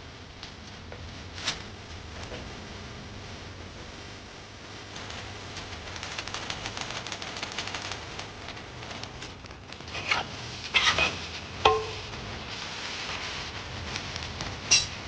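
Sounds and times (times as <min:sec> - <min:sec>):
greens sizzling in a pan: 0:05.0 - 0:15.0.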